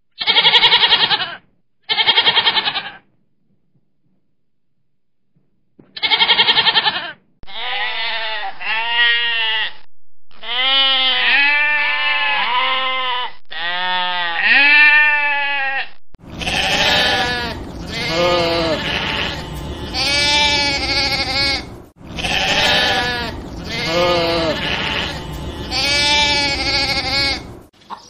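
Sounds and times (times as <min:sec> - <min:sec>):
goats and sheep bleating: 0:00.2 - 0:03.1, 0:06.0 - 0:27.7
field recording noise: 0:07.5 - 0:28.0.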